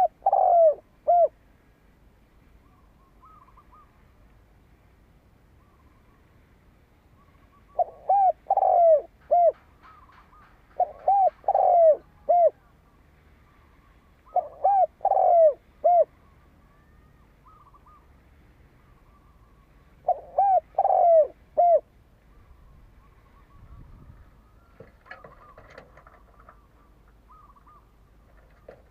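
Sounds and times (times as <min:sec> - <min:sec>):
dove cooing: 0:00.0 - 0:01.4, 0:02.6 - 0:04.0, 0:07.2 - 0:13.0, 0:14.2 - 0:18.1, 0:18.9 - 0:28.9
small birds chirping: 0:07.1 - 0:21.4, 0:22.2 - 0:28.9.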